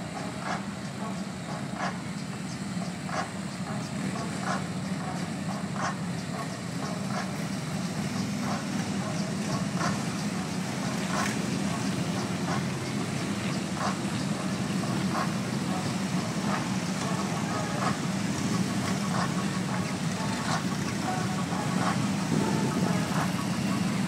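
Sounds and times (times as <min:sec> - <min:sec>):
motorcycle engines idling: 0:00.0 - 0:24.0.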